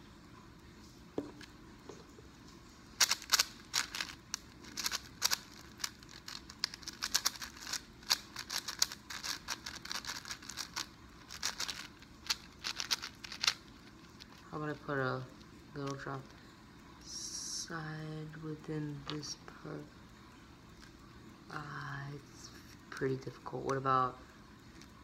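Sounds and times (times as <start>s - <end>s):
plastic puzzle cube pieces clicking: 3.0s - 14.5s.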